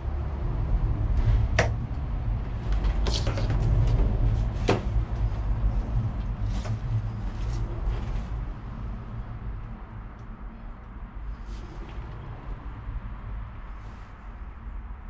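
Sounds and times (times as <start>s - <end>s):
low rumble: 0.0s - 15.0s
sharp clicks and knocks: 1.5s - 2.0s.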